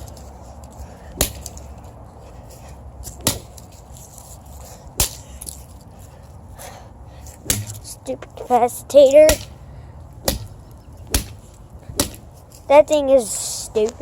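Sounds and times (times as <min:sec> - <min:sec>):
sharp blows on circuit board: 0:07.4 - 0:07.8.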